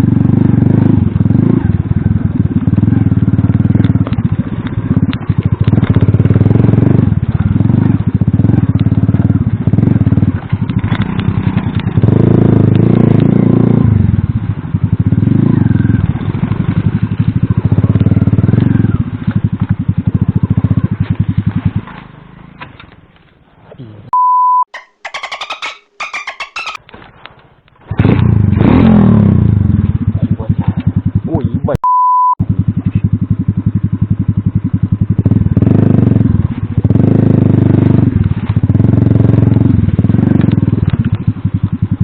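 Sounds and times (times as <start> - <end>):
moped engine revving: 0.0 - 23.3, 24.8 - 31.8, 32.4 - 42.0
short steady beep: 24.1 - 24.7, 31.8 - 32.4.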